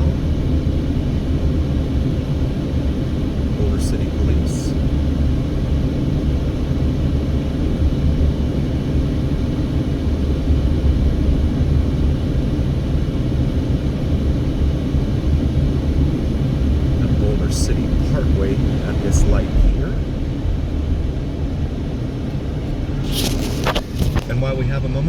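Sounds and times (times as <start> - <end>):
car driving heard from inside: 15.6 - 25.0.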